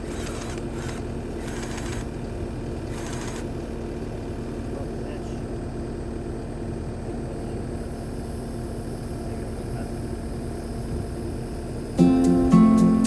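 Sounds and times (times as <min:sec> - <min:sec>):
diesel engine idling: 0:00.0 - 0:13.0
strummed acoustic guitar music: 0:12.0 - 0:13.0.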